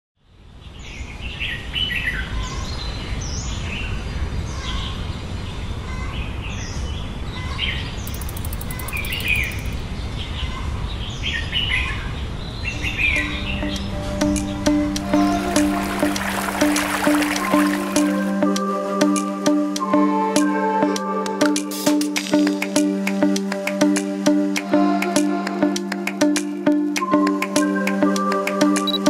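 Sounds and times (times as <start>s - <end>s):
birds chirping: 8.0s - 10.0s, 12.7s - 18.4s.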